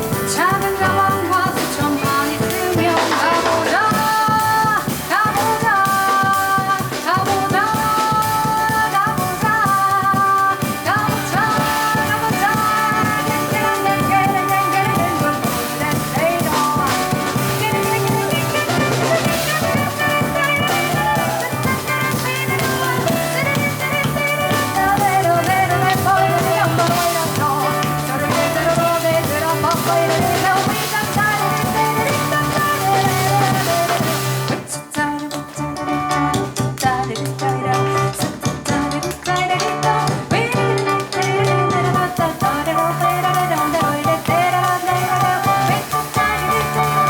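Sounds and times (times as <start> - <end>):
double bass: 0.0 - 3.8, 10.6 - 34.6
drum kit: 0.0 - 47.0
piano: 0.0 - 47.0.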